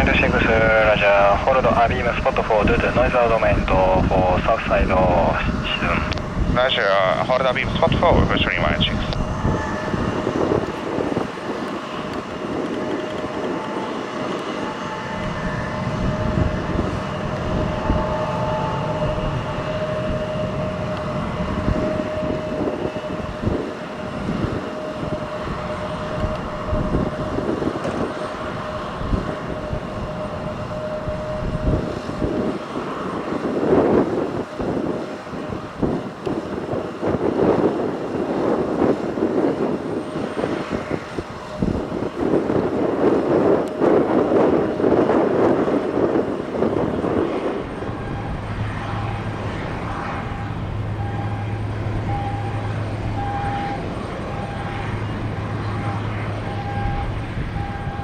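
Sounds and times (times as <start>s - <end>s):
jet engines whining: 0.0s - 58.0s
wind rumbling on microphone: 0.0s - 58.0s.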